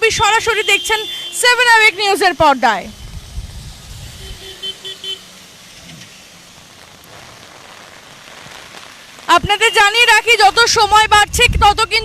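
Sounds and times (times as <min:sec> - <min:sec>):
steady background hiss: 0:00.0 - 0:11.9
street traffic: 0:00.0 - 0:12.0
vehicle horn short beeps: 0:04.2 - 0:05.2.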